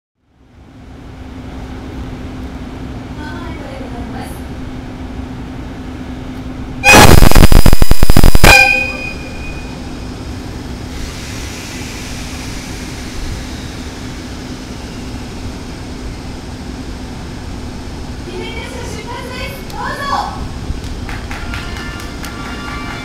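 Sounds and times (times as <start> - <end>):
steady low hum: 0.2 - 19.3
locomotive horn blast: 6.8 - 10.0, 21.4 - 23.0.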